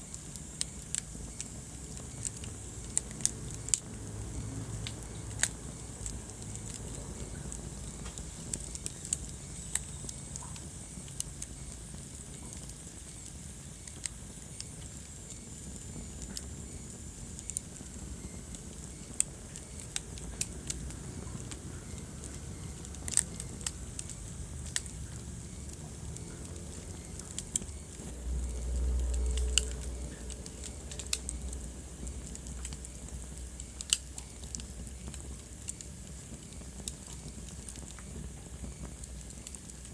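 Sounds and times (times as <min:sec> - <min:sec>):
soft fire hiss: 0:00.0 - 0:39.9
wood fire pops and snaps: 0:00.0 - 0:39.9
low rumble: 0:24.8 - 0:33.6.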